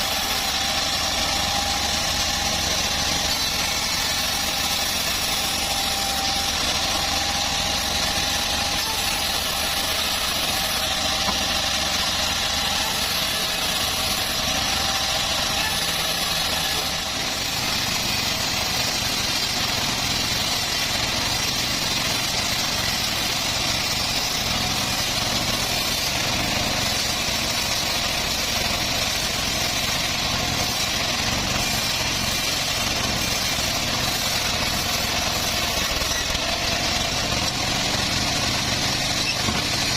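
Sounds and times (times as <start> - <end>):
bandsaw sawing a log: 0.0 - 39.9.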